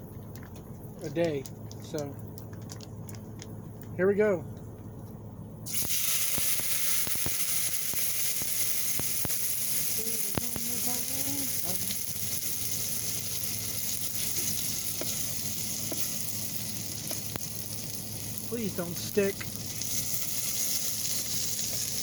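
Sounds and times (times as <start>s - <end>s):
small pops and crackles: 0.0s - 3.9s, 5.7s - 20.7s
steak sizzling in hot oil: 5.7s - 22.0s.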